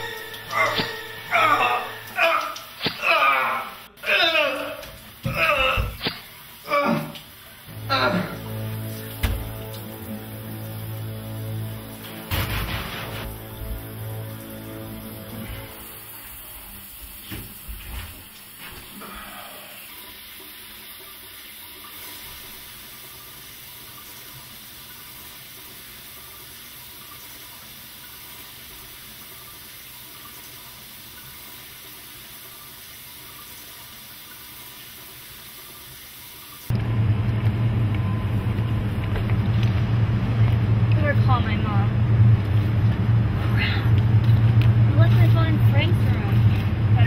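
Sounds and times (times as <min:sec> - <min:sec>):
shower water running: 0:00.0 - 0:47.0
loud low rumble: 0:36.7 - 0:47.0.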